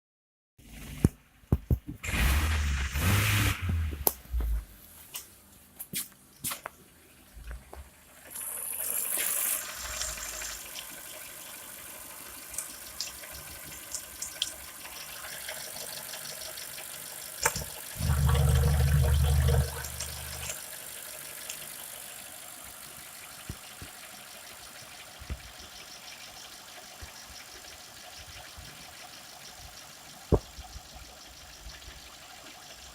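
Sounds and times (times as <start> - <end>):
car engine idling: 16.0 - 32.2
low engine burst: 18.0 - 20.5.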